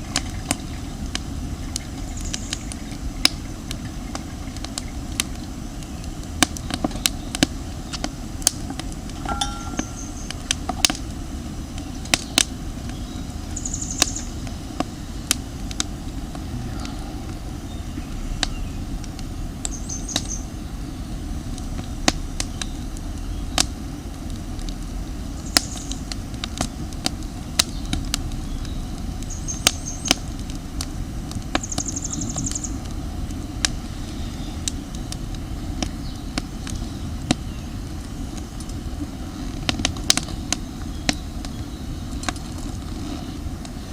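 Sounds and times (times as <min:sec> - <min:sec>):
campfire crackling and popping: 0:00.0 - 0:43.9
low rumble: 0:15.6 - 0:25.4, 0:26.0 - 0:31.6.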